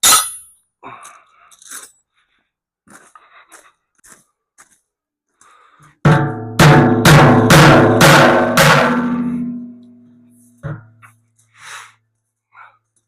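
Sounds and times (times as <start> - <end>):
hammer striking steel: 0.0 - 0.6, 6.1 - 10.0.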